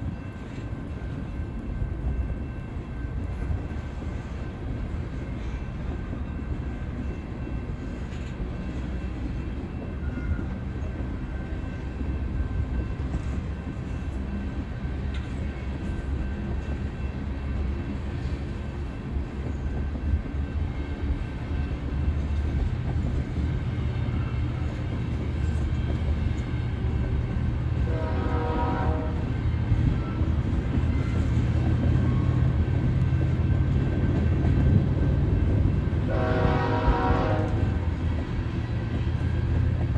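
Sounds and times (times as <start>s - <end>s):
train rumbling past: 0.0s - 39.9s
train horn blast: 27.8s - 29.4s, 36.0s - 37.9s.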